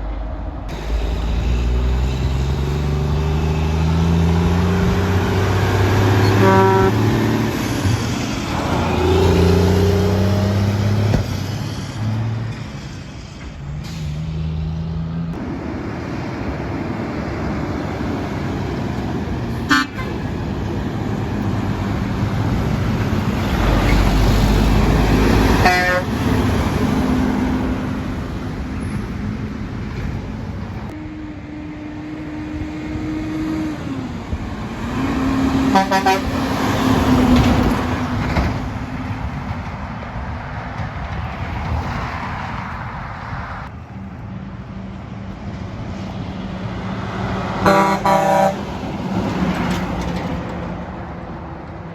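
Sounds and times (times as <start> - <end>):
traffic noise: 0.0 - 51.9
trucks passing: 0.0 - 51.9
truck air horns: 4.5 - 11.1, 19.6 - 20.3, 24.8 - 26.5, 35.0 - 37.0, 47.6 - 48.8.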